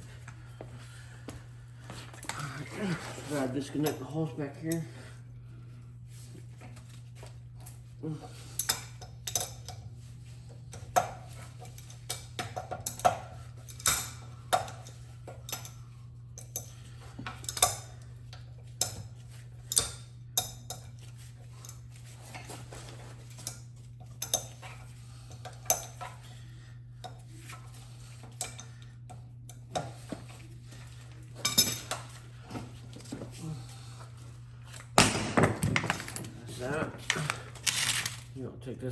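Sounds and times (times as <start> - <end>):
steady low hum: 0.0 - 38.9
metal tools clinking: 31.3 - 33.2, 35.3 - 38.3.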